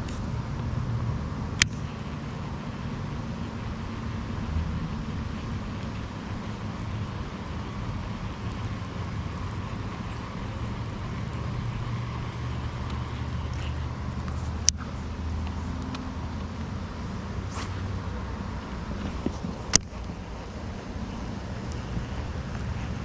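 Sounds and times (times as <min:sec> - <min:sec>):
low steady rumble: 0:00.0 - 0:23.0
light rain on water: 0:01.5 - 0:23.0.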